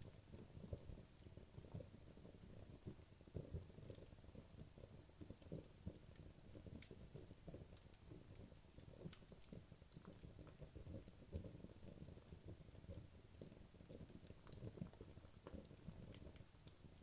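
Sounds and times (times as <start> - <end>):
fire crackles and pops: 0.0 - 17.0
logs burning in fireplace: 0.0 - 17.0.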